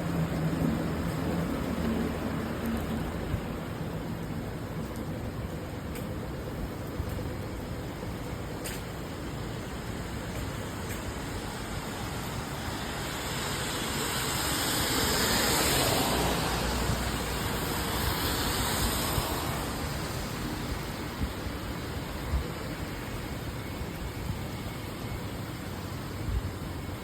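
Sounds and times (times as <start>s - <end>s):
car tyres spraying on wet road: 0.0s - 27.0s
steady rain: 0.0s - 27.0s
light ticks: 4.2s - 6.2s.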